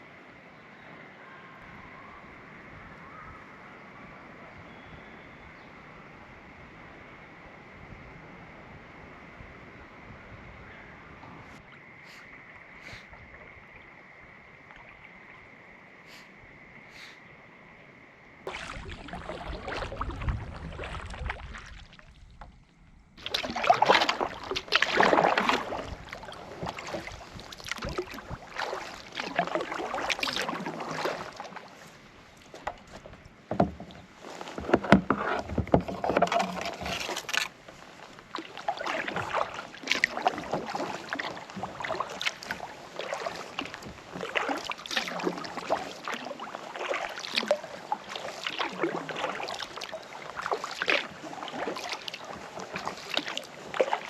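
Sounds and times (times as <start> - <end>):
paddle strokes in water: 10.6 - 17.2, 18.4 - 54.0
water splashes and drips: 14.6 - 15.2, 18.4 - 22.6, 23.2 - 54.0.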